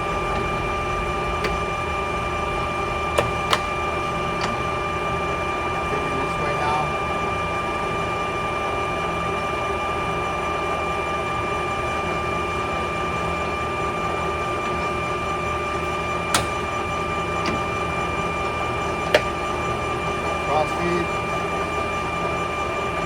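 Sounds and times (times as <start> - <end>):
lathe humming with a whine: 0.0 - 23.0
sharp click: 16.3 - 16.7.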